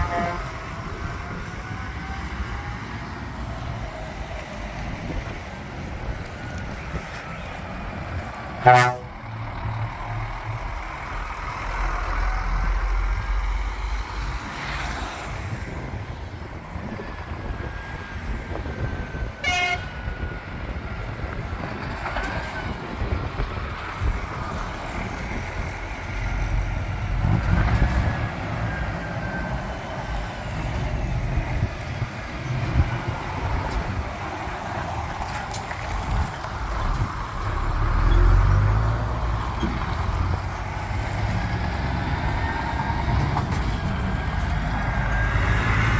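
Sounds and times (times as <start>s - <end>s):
air horn blast: 0.0s - 0.6s, 8.6s - 9.2s, 19.4s - 20.0s
lorry engines driving past: 0.0s - 45.9s.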